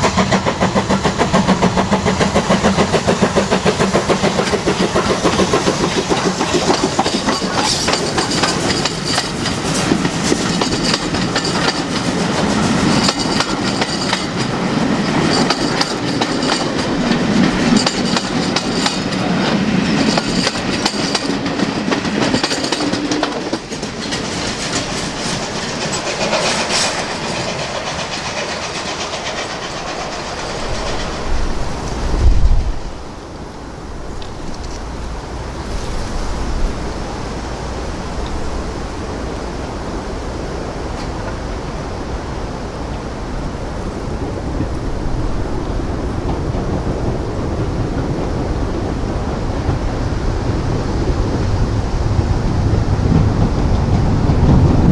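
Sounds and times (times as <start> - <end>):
train wheels clicking over rail joints: 0.0 - 54.9.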